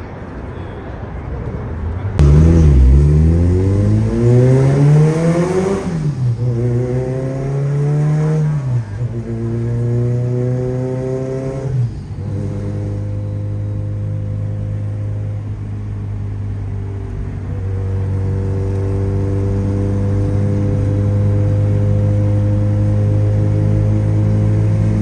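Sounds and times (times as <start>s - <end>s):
car engine accelerating: 2.2s - 25.0s.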